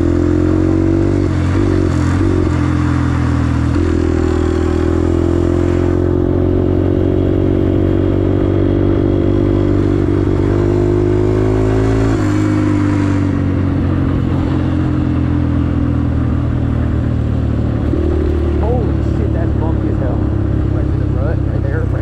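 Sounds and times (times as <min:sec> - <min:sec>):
engine idling: 0:16.1 - 0:22.0
engine ticking: 0:17.0 - 0:22.0.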